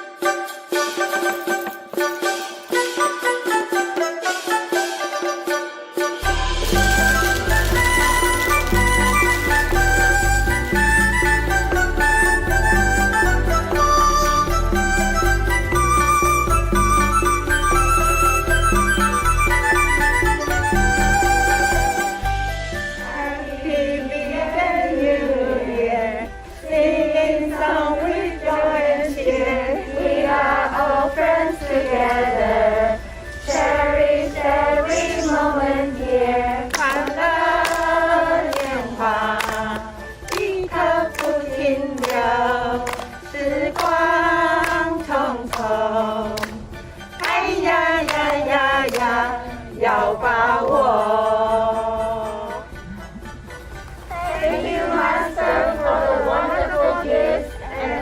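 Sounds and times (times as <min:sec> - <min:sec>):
hand claps: 0:06.6 - 0:10.8, 0:36.6 - 0:49.2
group singing together: 0:23.0 - 0:53.1, 0:54.1 - 0:58.0.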